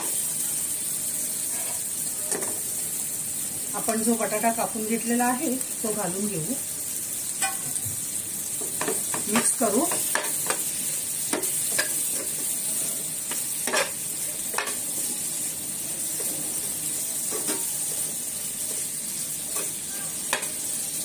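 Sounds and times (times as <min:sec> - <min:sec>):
vegetables sizzling in oil: 0:00.0 - 0:21.0
spatula scraping pan: 0:01.4 - 0:02.5, 0:13.3 - 0:14.8.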